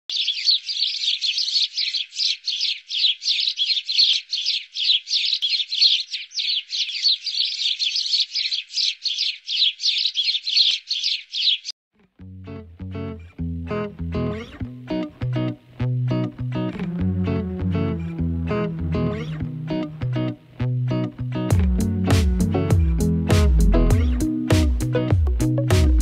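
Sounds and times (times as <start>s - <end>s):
bird chirping: 0.1s - 11.8s.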